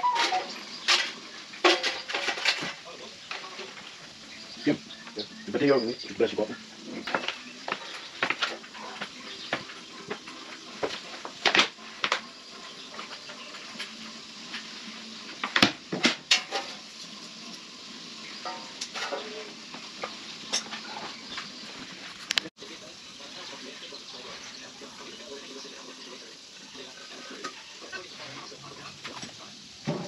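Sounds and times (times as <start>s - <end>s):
metal tools clinking and knocking: 0.0s - 3.8s.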